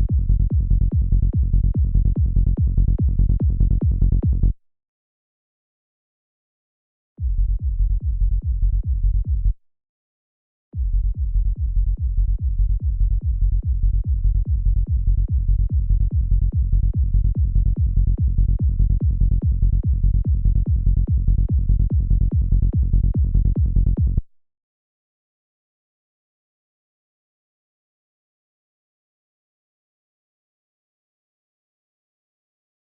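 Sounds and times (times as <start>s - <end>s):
electronic kick drum and bass: 0.0s - 4.6s, 7.2s - 9.6s, 10.8s - 24.3s.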